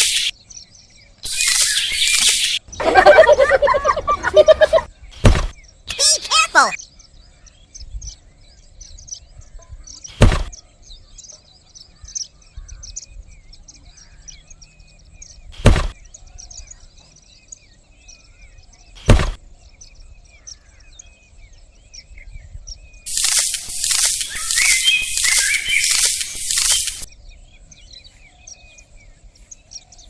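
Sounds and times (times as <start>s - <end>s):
small birds chirping: 0.0s - 30.0s
sharp knocks: 5.2s - 5.5s, 15.6s - 15.9s, 19.1s - 19.4s.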